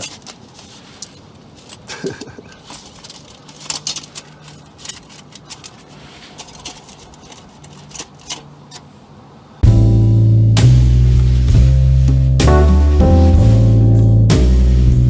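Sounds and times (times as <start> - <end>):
can crinkling: 0.0 - 8.9
scissors cutting drink can: 1.6 - 8.9
loud music: 9.6 - 15.0.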